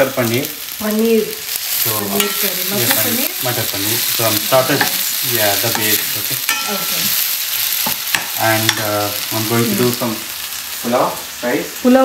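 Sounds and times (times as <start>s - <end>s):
onions sizzling in a pan: 0.0s - 12.0s
spatula scraping and tapping pan: 2.2s - 2.4s, 4.7s - 7.1s, 7.8s - 8.9s.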